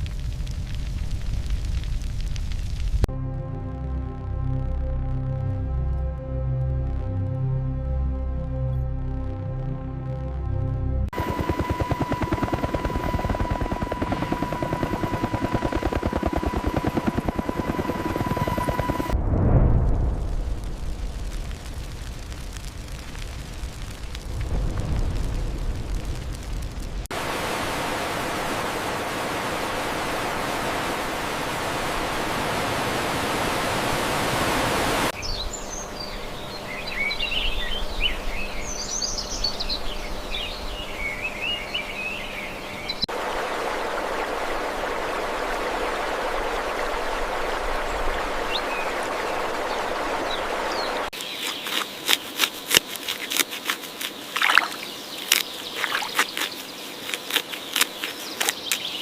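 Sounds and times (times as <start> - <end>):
steady rushing noise: 26.9 - 35.2
birds chirping: 35.2 - 43.1, 47.8 - 59.0.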